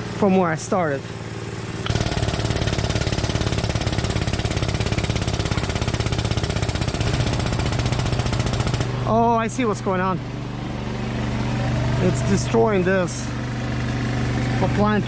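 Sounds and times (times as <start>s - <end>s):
machine rapid chatter: 1.9s - 9.0s.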